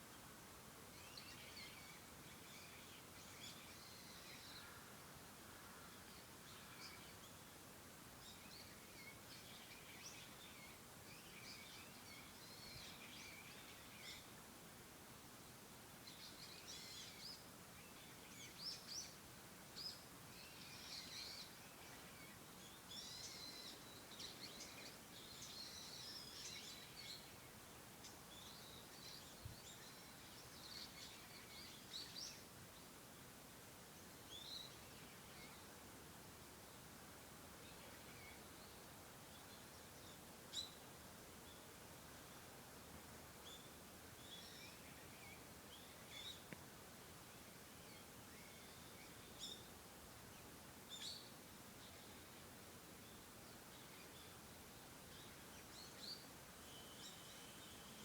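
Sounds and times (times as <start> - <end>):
quiet steady hiss: 0.0 - 58.0
songbirds chirping: 16.0 - 58.0.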